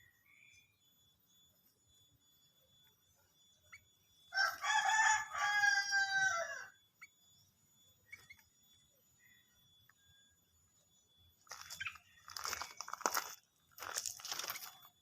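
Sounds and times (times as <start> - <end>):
rooster crowing: 4.3 - 6.8.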